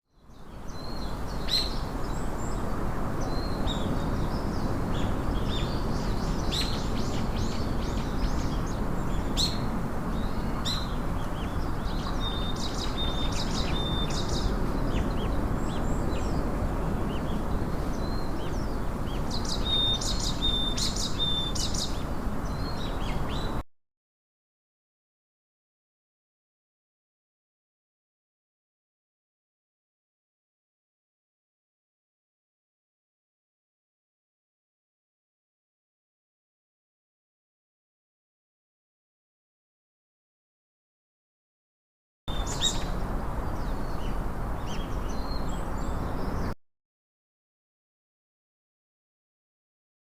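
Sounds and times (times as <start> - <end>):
birds chirping and calling: 3.2 - 16.4, 17.1 - 23.6, 42.3 - 46.5.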